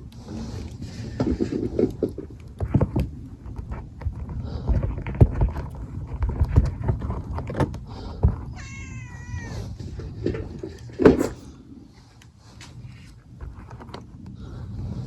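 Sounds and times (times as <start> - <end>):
cat meowing: 8.5 - 9.7.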